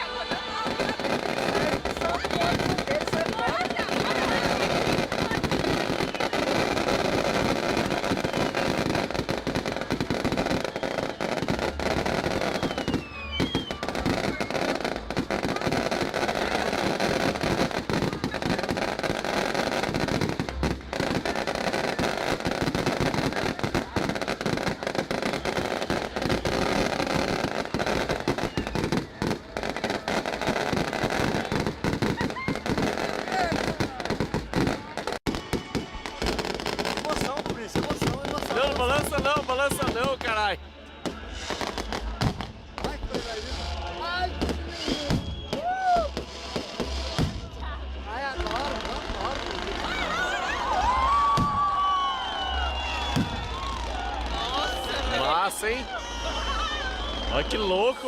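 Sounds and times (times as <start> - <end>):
fireworks crackling: 0.0 - 58.0
faint falling whistles: 10.4 - 14.8, 25.2 - 29.2, 44.7 - 46.2, 51.0 - 53.8, 55.9 - 58.0.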